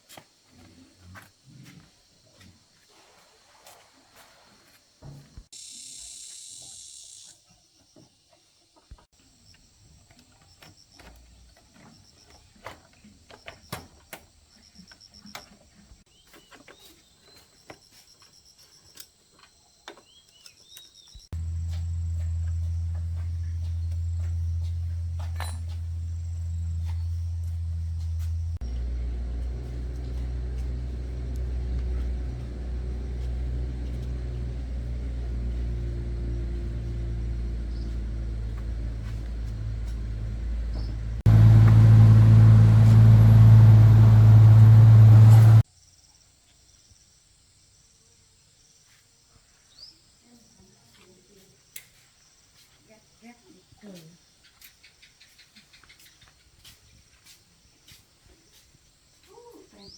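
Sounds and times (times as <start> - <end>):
motorbike engine running: 21.4 - 45.6.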